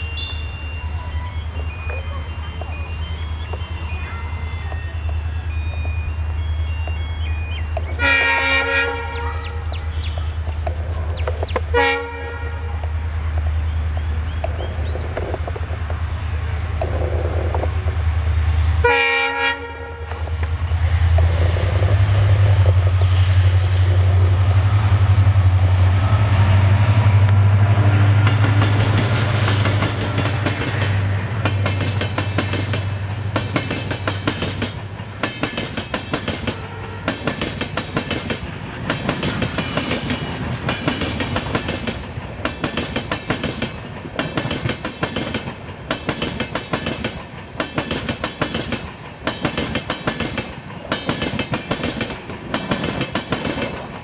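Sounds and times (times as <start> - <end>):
diesel locomotive rumbling: 0.0 - 54.0
train horn blast: 8.0 - 9.8, 11.7 - 12.9, 18.8 - 20.3, 36.5 - 37.3
train wheels clattering over rail joints: 27.0 - 54.0.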